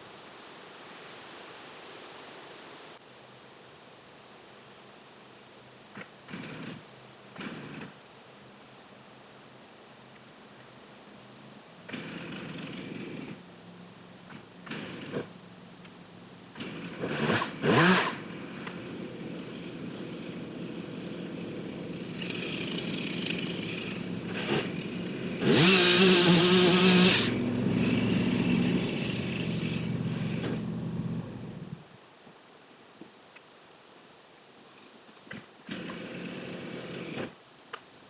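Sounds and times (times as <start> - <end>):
chainsaw engine revving: 6.0 - 8.0, 11.8 - 13.4, 14.3 - 15.4, 16.5 - 31.8, 35.3 - 37.4.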